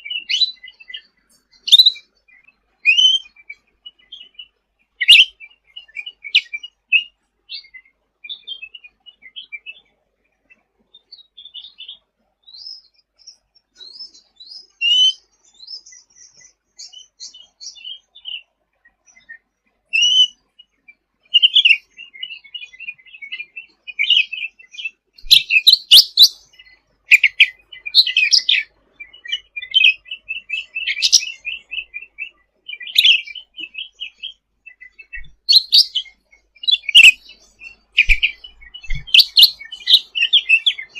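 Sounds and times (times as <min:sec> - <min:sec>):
bird chattering twitter: 0:25.2 - 0:26.4, 0:27.1 - 0:28.6, 0:29.2 - 0:32.2, 0:32.8 - 0:40.9.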